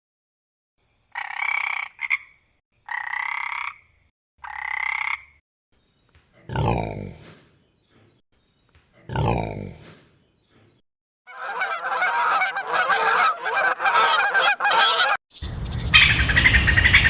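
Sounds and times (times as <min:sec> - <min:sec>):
frog croaking: 0:01.1 - 0:05.4, 0:15.4 - 0:17.0
deep animal call falling in pitch: 0:15.4 - 0:17.0.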